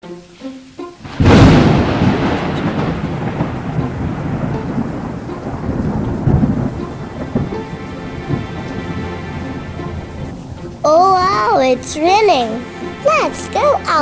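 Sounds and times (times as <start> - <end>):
steady rain: 0.1 - 14.0
rolling thunder: 1.1 - 10.8.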